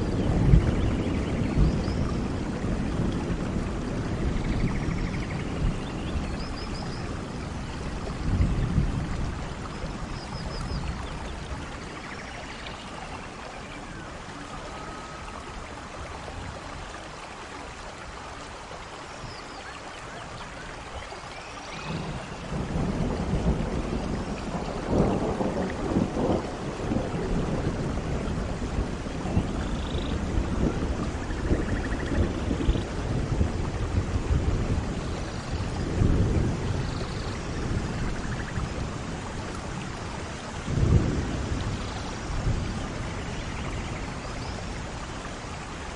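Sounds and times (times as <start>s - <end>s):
thunder rumble: 0.0s - 16.6s, 21.7s - 45.9s
rain on foliage: 0.0s - 45.9s.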